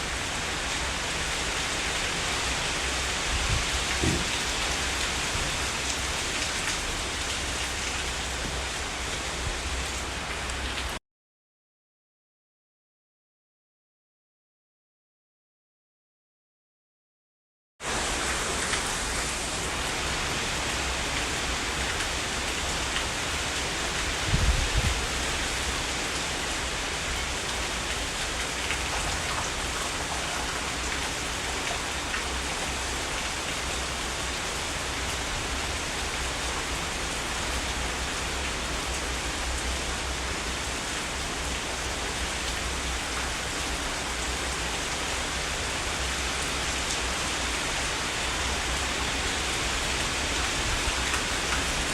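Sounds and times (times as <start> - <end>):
heavy rain on leaves and ground: 0.0 - 11.0, 17.8 - 51.9
low thump: 4.0 - 4.4.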